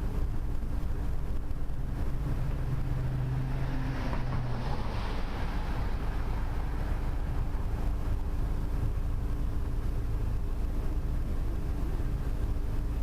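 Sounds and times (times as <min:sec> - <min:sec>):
wind rumbling on microphone: 0:00.0 - 0:13.0
faint steady hum: 0:05.2 - 0:13.0.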